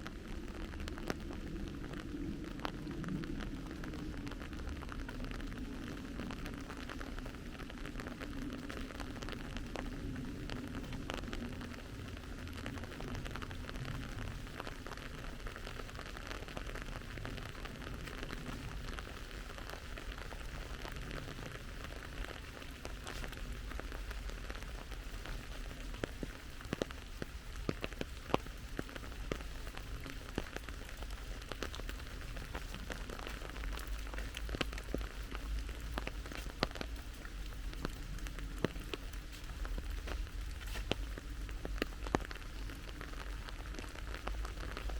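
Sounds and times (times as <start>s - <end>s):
close raindrop ticks: 0.0s - 44.9s
steady rain falling: 0.0s - 44.9s.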